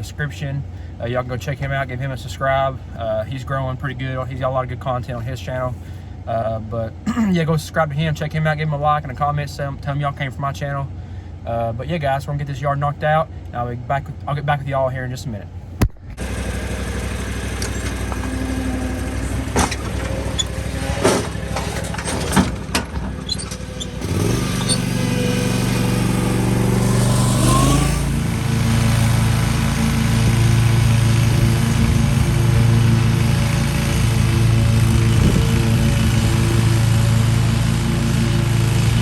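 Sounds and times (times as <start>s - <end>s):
mower engine running: 15.8s - 39.0s.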